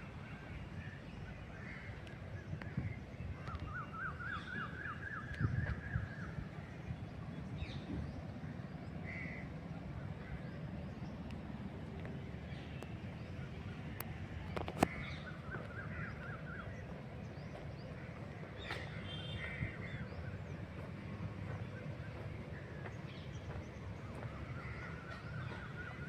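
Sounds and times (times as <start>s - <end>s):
steady low rumble: 5.3s - 26.0s
birds calling: 14.0s - 26.0s.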